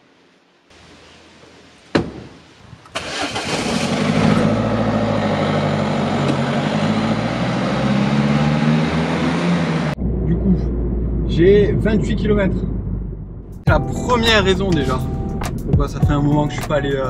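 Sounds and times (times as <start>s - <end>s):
sharp knock: 2.0s - 2.3s
car engine starting and running: 2.8s - 17.0s.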